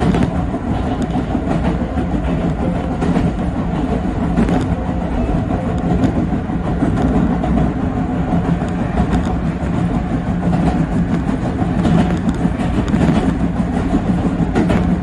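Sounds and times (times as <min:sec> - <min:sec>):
constant hum: 0:00.0 - 0:15.0
train wheel-on-rail rumble: 0:00.0 - 0:15.0.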